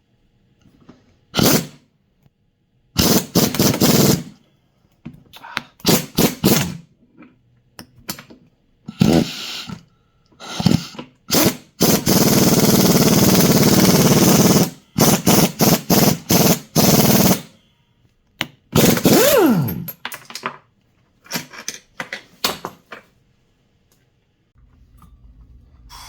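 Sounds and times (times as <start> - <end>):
power tool running in bursts: 18.8 - 19.9.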